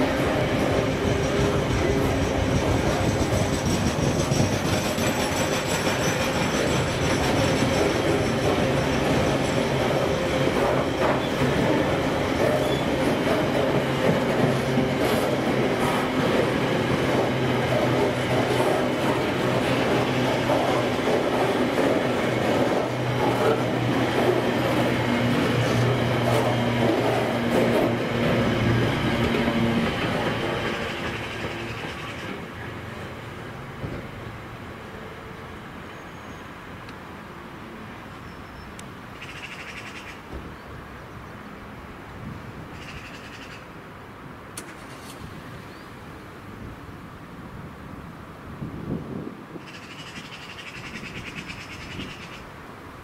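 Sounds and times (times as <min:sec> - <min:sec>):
train wheels on rails: 0:00.0 - 0:34.6
freight wagons rumbling on track: 0:00.0 - 0:34.8.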